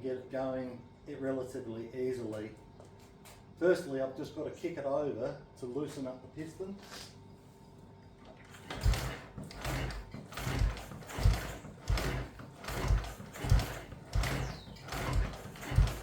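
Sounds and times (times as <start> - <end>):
motorcycle engine being kickstarted: 8.4 - 16.0
mechanical clatter: 8.5 - 16.0.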